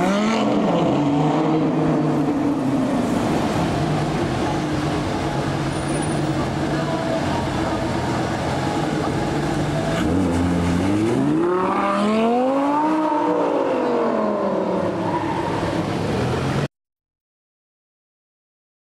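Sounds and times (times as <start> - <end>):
car engine revving and accelerating: 0.0 - 6.0, 8.6 - 16.7.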